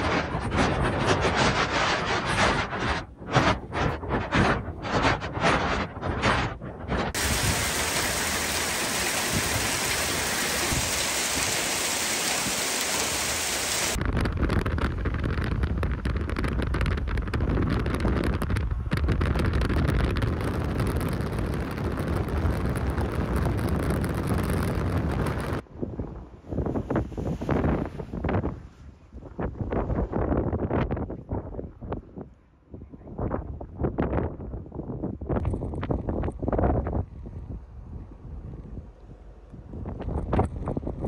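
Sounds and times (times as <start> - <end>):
gusty wind buffeting microphone: 0.0 - 41.0
heavy rain and hail: 7.1 - 14.0.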